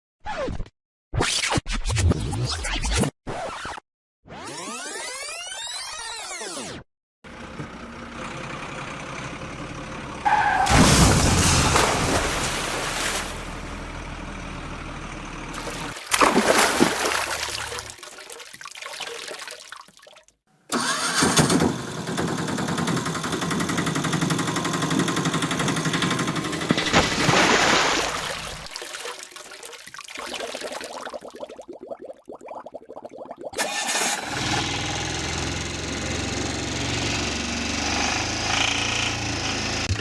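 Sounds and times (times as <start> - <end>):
vehicle engines starting and running: 7.3 - 12.5, 13.3 - 16.1, 20.7 - 27.2, 33.6 - 40.0.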